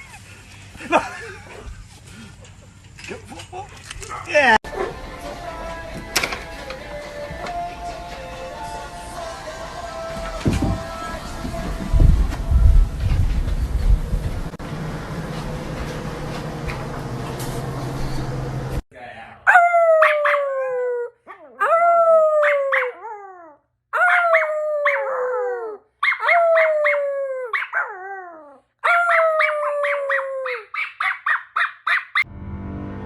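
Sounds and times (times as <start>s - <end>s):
dog howling: 19.5s - 30.7s
dog yipping: 19.5s - 32.3s.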